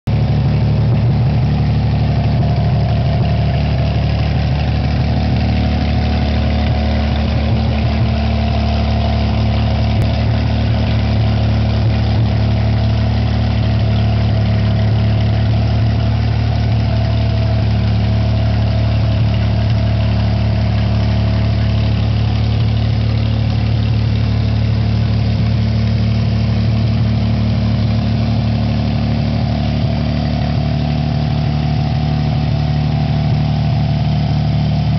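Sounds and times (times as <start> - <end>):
marine engine idling: 0.1 - 34.9.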